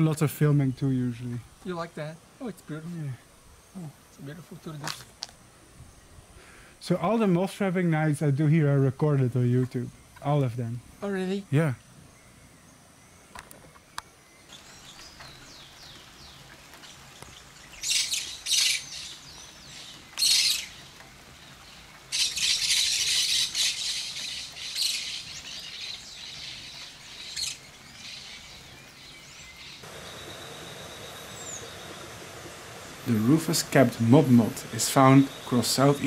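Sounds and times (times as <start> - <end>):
birds calling: 11.8 - 36.0
birds chattering: 14.5 - 36.0
harsh high bird calls: 17.6 - 20.9, 22.1 - 36.0.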